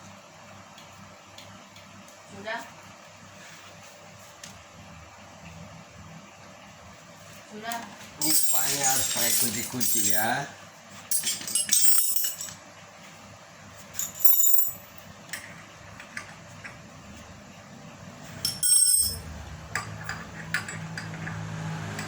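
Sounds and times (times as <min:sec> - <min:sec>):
metal parts clinking: 0:08.2 - 0:10.4, 0:11.1 - 0:12.6, 0:14.0 - 0:15.0, 0:18.4 - 0:21.1
low steady hum: 0:14.0 - 0:15.1, 0:18.2 - 0:21.3.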